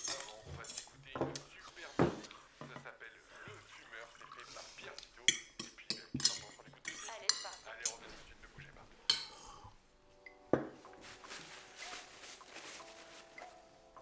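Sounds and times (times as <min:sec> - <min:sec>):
cutlery clinking on plates: 0:00.0 - 0:02.9, 0:05.2 - 0:08.2
soft music with held notes: 0:07.2 - 0:14.0.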